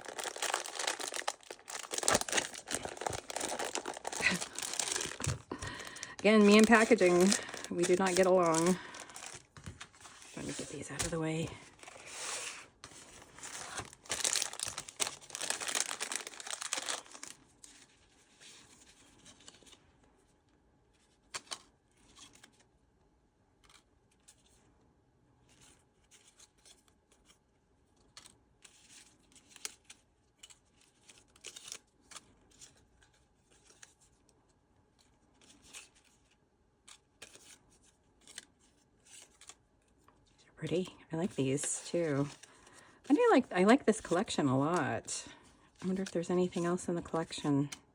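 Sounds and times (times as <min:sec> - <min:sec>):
paper rustles and taps: 0:00.0 - 0:11.2
packaging crinkling and tearing: 0:00.0 - 0:19.8, 0:28.2 - 0:34.1, 0:40.8 - 0:47.8.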